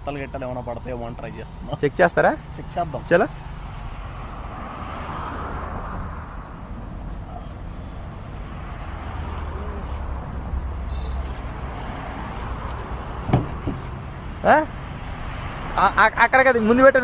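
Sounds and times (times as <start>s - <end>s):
road traffic rumble: 0.0s - 17.0s
bird chirping: 9.6s - 13.8s.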